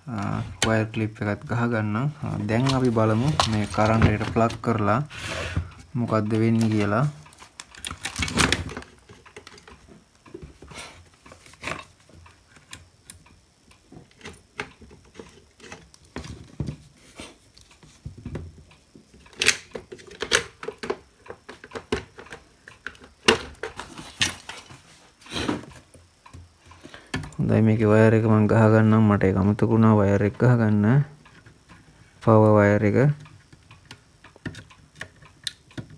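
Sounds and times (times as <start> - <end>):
hands handling tool on workbench: 2.2 - 9.7.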